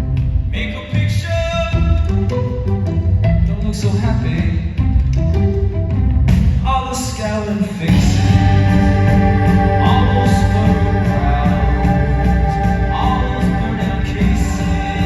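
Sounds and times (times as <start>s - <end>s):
man singing: 0.5s - 2.1s, 6.6s - 15.0s
live band music: 7.4s - 15.0s.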